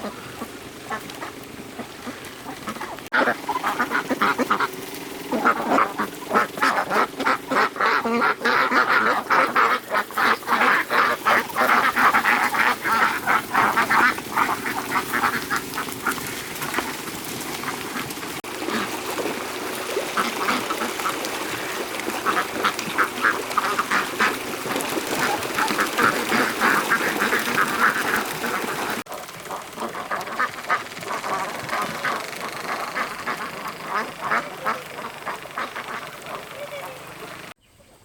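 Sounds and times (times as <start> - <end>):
ducks quacking: 0.0 - 37.6.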